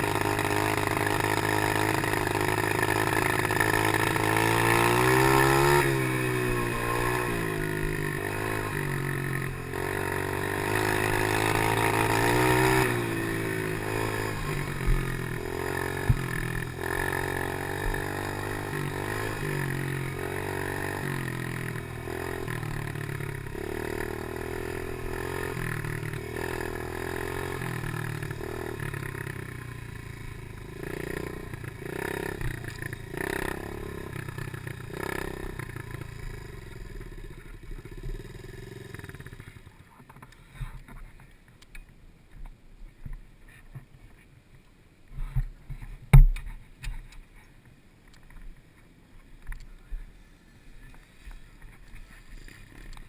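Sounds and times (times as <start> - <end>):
pit bike engine revving: 0.0 - 39.8
sharp knocks: 46.1 - 46.6.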